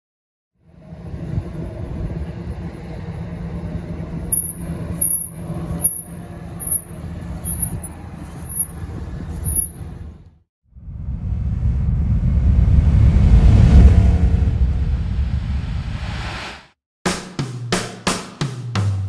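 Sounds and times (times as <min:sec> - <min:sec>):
car engine running: 0:01.3 - 0:10.1.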